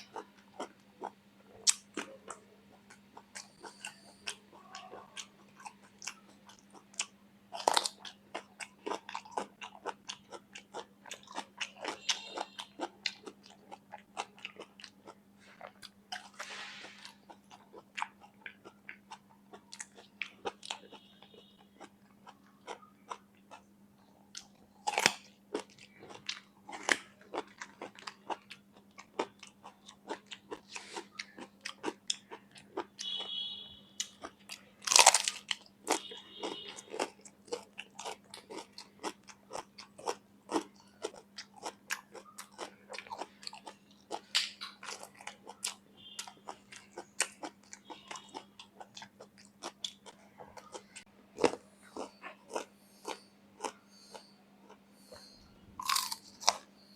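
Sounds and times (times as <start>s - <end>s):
crunching raw vegetables: 0.0s - 23.7s, 24.3s - 56.9s.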